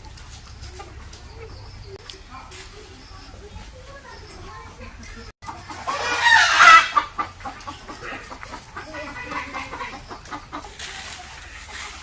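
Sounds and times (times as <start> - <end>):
chickens clucking: 0.0 - 12.0
chicken drawn-out call: 5.7 - 12.0.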